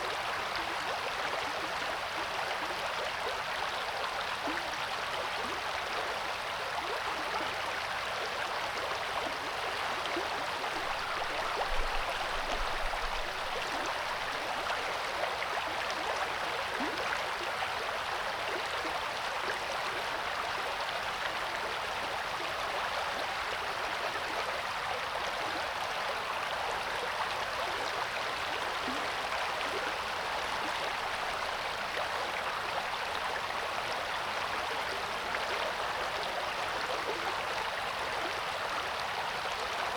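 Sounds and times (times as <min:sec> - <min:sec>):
river water rushing: 0:10.7 - 0:14.9.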